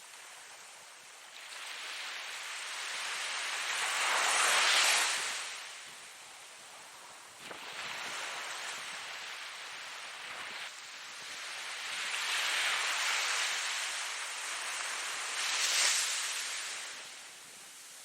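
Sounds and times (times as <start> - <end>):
ocean waves breaking: 7.4 - 17.2.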